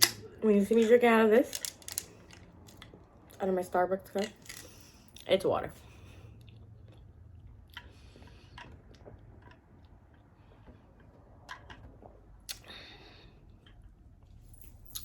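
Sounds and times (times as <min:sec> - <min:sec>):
low room hum: 0:00.0 - 0:15.0
soft chewing: 0:06.1 - 0:11.2.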